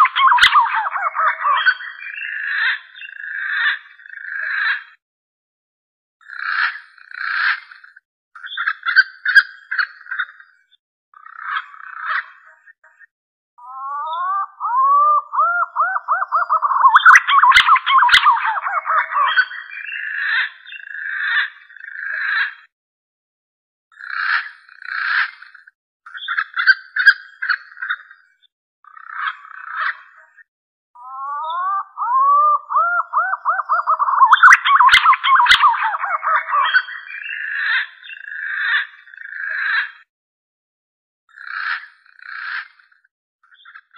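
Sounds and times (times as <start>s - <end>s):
pigeon whistling song: 0.0s - 1.8s, 13.8s - 19.5s, 31.1s - 37.6s
pigeon whistled call: 31.2s - 36.9s.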